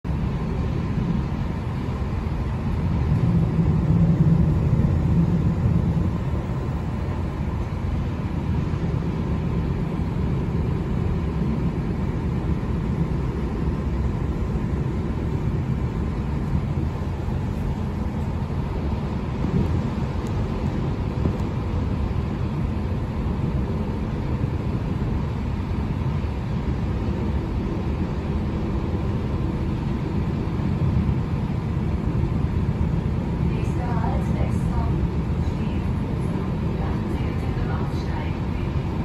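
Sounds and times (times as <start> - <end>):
train rumbling on track: 0.0 - 39.0.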